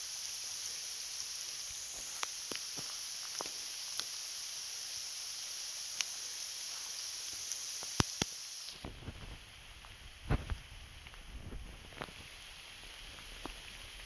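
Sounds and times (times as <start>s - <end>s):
high-pitched outdoor hiss: 0.0s - 14.0s
wind rumble on microphone: 8.8s - 12.3s.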